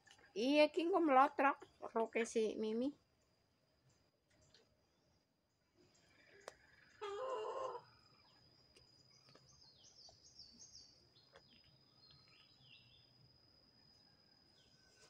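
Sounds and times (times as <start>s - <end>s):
faint bird chirps: 3.1s - 15.0s.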